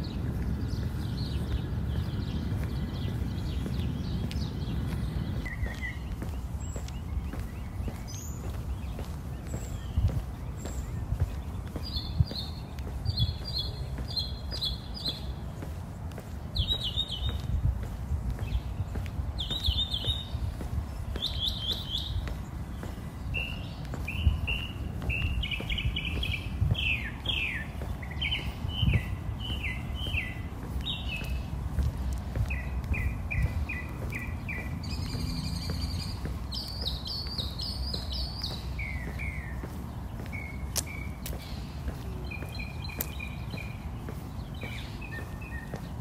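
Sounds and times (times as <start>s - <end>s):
songbird singing: 0.0s - 46.0s.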